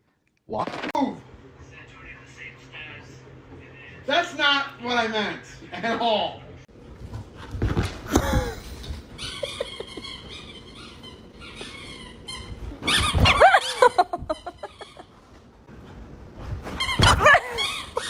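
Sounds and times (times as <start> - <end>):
dog whining: 8.3 - 14.0.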